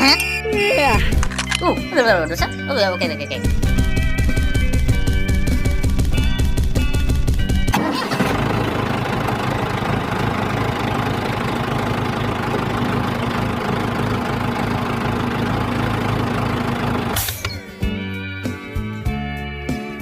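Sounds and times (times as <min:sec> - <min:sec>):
background music: 0:00.0 - 0:08.3, 0:16.4 - 0:20.0.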